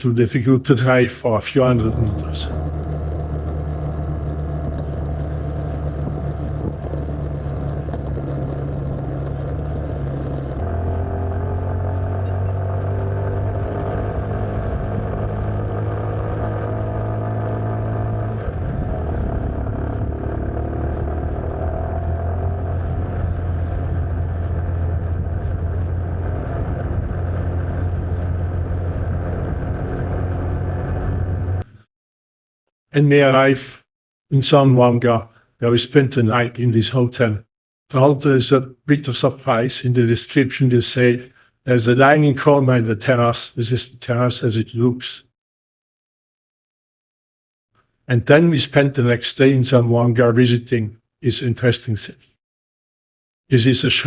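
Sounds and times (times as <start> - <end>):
road and wind noise: 1.6 - 31.7
motorcycle engine running: 1.7 - 31.8.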